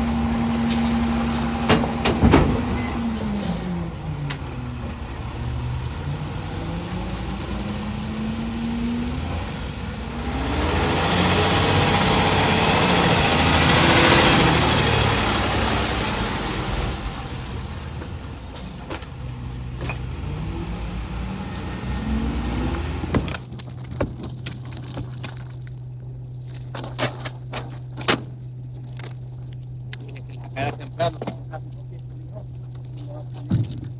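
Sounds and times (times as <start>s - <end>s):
hydraulic packer grinding and crushing: 0.0s - 3.8s, 22.4s - 33.9s
garbage truck engine revving: 0.0s - 23.5s.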